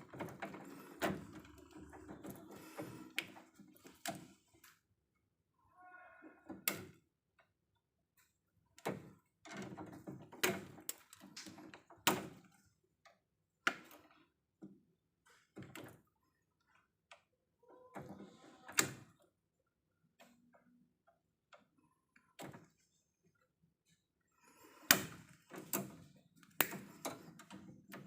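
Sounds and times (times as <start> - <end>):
sharp clicks and knocks: 24.8 - 28.0.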